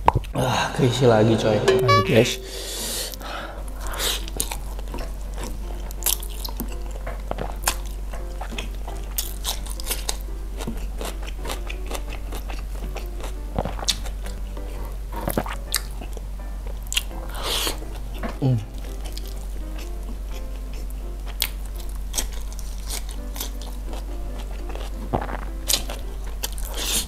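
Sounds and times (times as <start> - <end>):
close chewing and mouth sounds: 0.0 - 0.4, 3.8 - 27.0
soft background music: 0.4 - 27.0.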